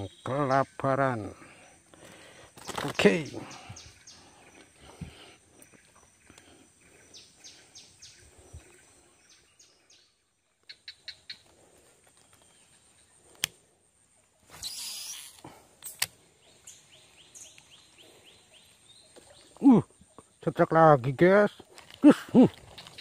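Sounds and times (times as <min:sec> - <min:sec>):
small birds chirping: 0:00.0 - 0:23.0
sharp clicks: 0:15.8 - 0:16.2.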